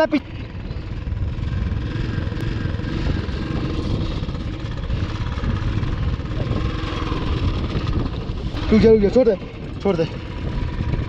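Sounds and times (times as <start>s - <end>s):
rider speaking: 0.0s - 0.6s, 8.4s - 10.7s
motorcycle engine running: 0.0s - 11.0s.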